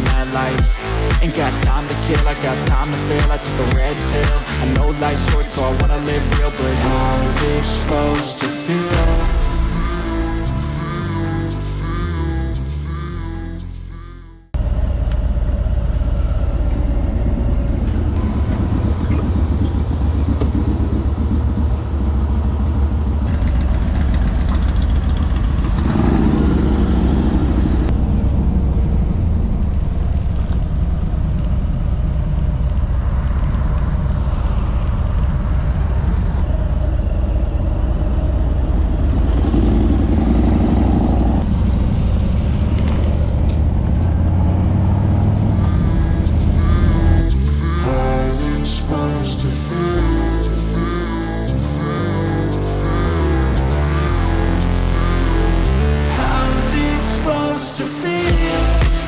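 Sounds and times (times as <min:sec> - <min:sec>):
motorcycle engine running: 0:14.6 - 0:46.8.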